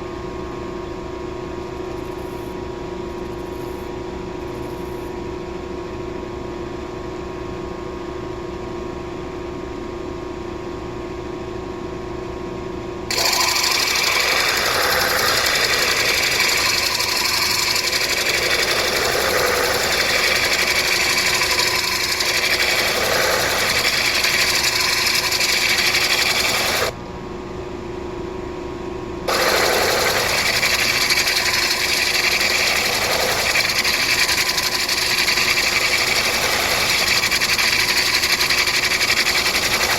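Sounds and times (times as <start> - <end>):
stone grinding on wheel: 13.1 - 26.9, 29.3 - 39.9
grinding wheel motor hum: 13.1 - 27.0, 29.3 - 39.9.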